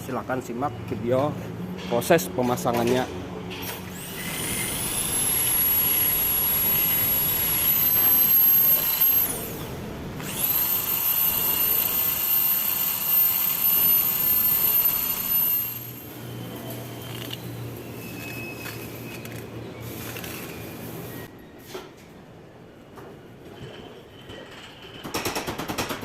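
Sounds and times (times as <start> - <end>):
electric power tool whining: 3.6 - 16.4.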